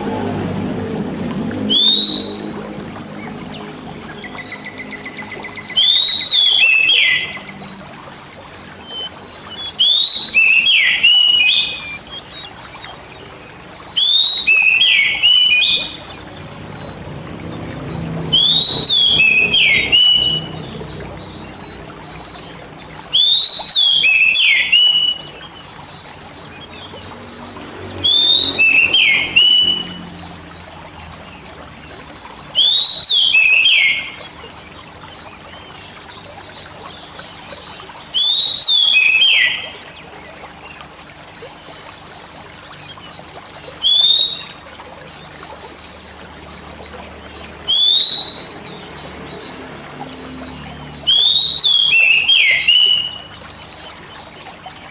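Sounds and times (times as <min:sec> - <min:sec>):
bird whistling song: 0:01.6 - 0:02.6, 0:04.1 - 0:07.5, 0:08.8 - 0:12.6, 0:14.0 - 0:17.4, 0:18.3 - 0:25.6, 0:28.0 - 0:30.6, 0:32.5 - 0:34.3, 0:38.1 - 0:39.9, 0:43.8 - 0:44.6, 0:47.6 - 0:48.8, 0:51.1 - 0:53.8.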